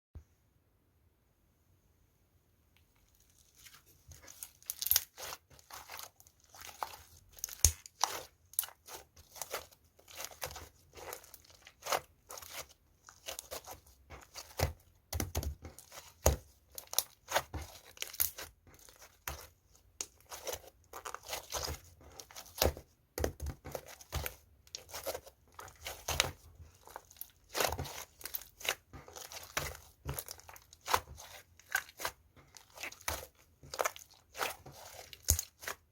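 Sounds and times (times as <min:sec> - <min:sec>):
sticky slime clicks and crackles: 0:04.7 - 0:08.8.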